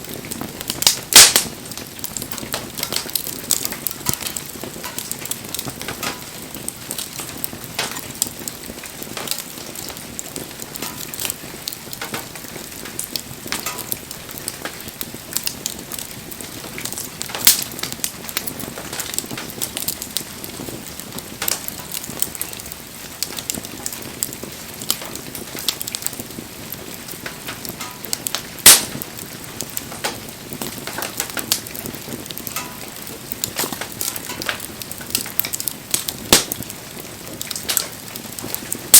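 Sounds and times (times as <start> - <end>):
bonfire crackling: 0.0 - 38.9
sharp loud pops: 1.2 - 1.5, 28.7 - 29.0, 36.3 - 36.6.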